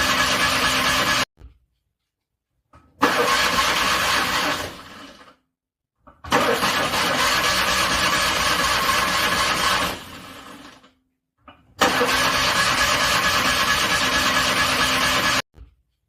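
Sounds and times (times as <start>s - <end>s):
car engine cranking: 3.0s - 4.9s, 6.3s - 10.2s, 11.8s - 15.4s.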